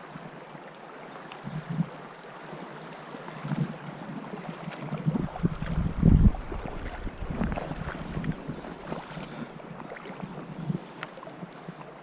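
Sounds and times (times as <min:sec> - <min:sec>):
river water rushing: 0:01.9 - 0:12.0
wind buffeting microphone: 0:04.9 - 0:10.8.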